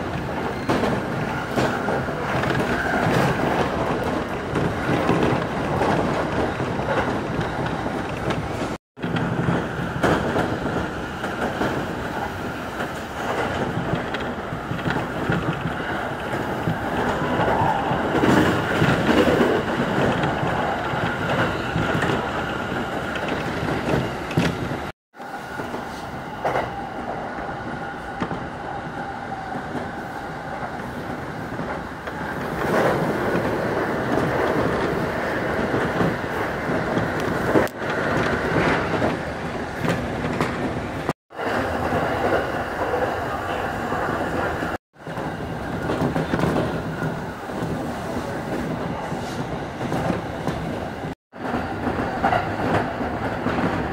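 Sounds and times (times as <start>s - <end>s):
train wheels rumbling on rail: 0.0s - 53.9s
clicks over rail joints: 0.1s - 24.9s.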